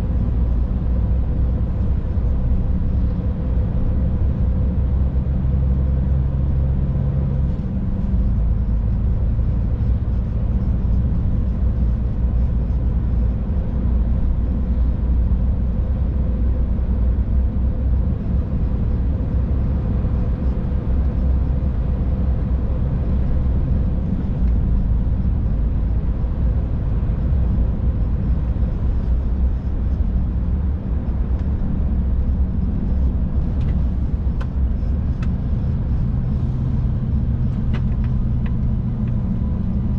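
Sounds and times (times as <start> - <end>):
faint steady hum: 0.0 - 39.9
truck engine and road rumble: 0.0 - 39.9.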